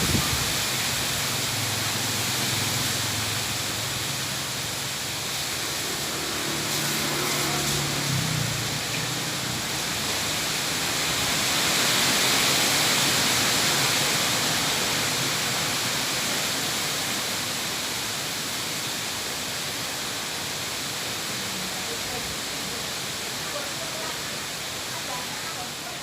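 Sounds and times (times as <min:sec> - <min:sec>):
strong wind blowing: 0:00.0 - 0:01.2.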